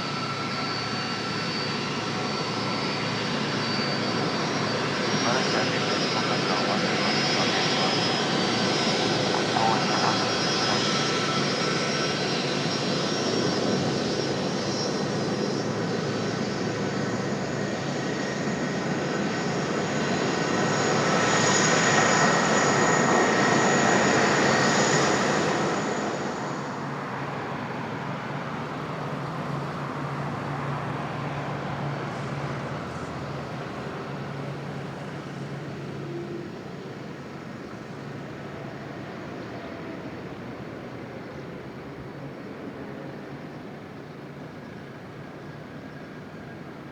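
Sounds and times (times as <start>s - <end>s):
jet airliner passing: 0.0s - 46.8s.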